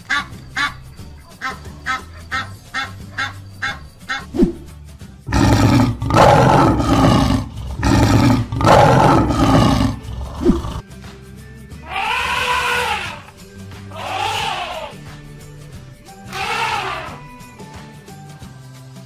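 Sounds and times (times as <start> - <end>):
background music: 0.0 - 19.0
lion roaring: 5.3 - 10.8.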